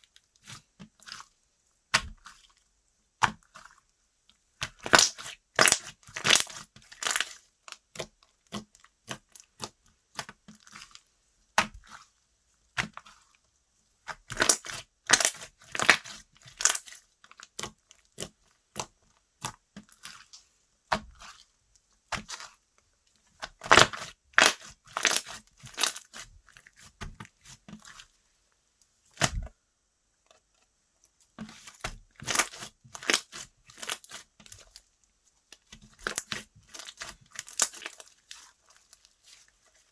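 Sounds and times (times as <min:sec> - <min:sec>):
slime crackling and popping: 0:04.6 - 0:10.8, 0:14.1 - 0:21.4, 0:23.4 - 0:27.0, 0:31.4 - 0:34.8, 0:35.6 - 0:39.9.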